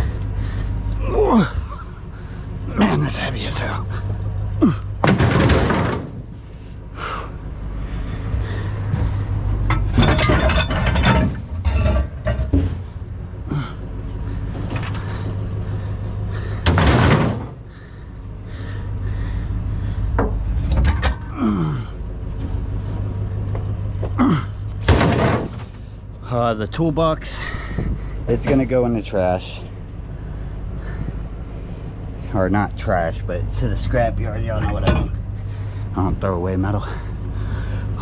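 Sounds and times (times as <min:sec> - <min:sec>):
steady low hum: 0:00.0 - 0:38.0
scrap metal banging and clattering: 0:05.0 - 0:06.4, 0:08.9 - 0:13.0, 0:16.6 - 0:17.6, 0:24.8 - 0:25.9.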